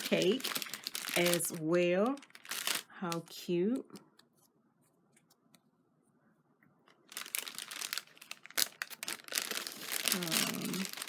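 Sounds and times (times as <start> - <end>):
plastic bag crinkling: 0.0 - 4.0, 6.9 - 11.0.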